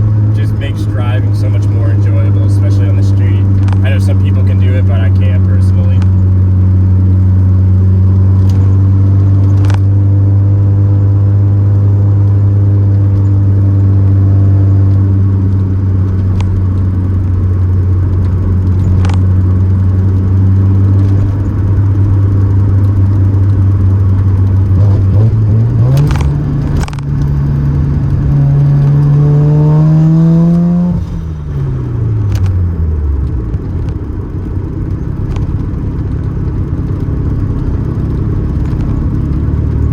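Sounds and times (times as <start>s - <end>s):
rotary engine revving: 20.7s - 32.6s.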